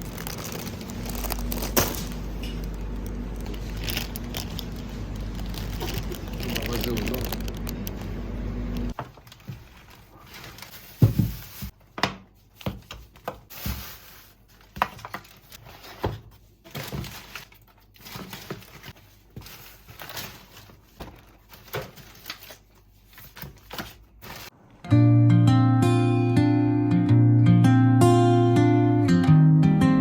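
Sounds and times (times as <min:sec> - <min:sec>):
steady low rumble: 0:00.0 - 0:08.9
objects knocking and clattering: 0:10.9 - 0:13.9.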